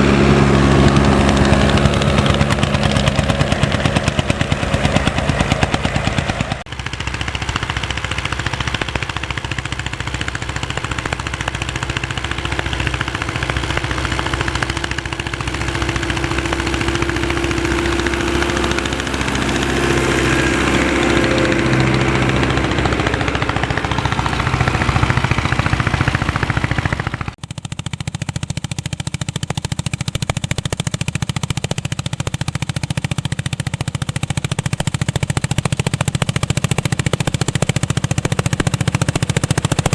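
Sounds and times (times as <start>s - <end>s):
low engine drone: 0.0s - 27.4s
steadier engine note: 0.0s - 27.7s
tractor exhaust popping: 0.0s - 39.9s.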